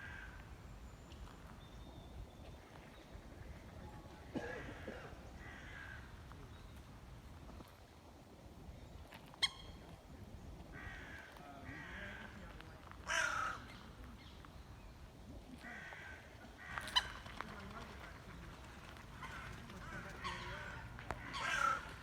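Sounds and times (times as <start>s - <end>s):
birds cawing: 13.1s - 13.7s, 19.1s - 22.0s.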